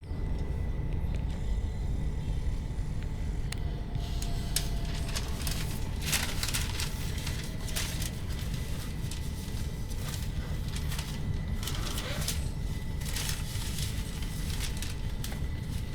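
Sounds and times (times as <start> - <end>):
train wheels rumbling: 3.7 - 15.9.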